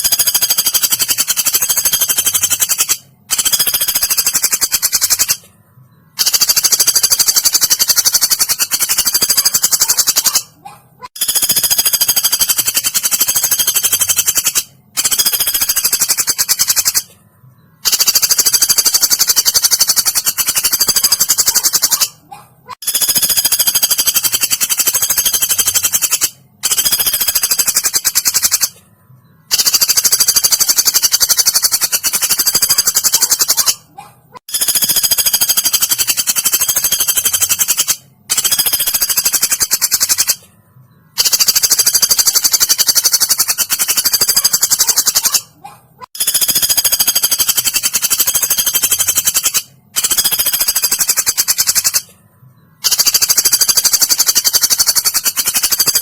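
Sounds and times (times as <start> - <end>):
woodpecker rattle calls: 0.0 - 5.5, 6.1 - 17.1, 17.8 - 28.8, 29.4 - 40.4, 41.1 - 52.1, 52.8 - 56.0.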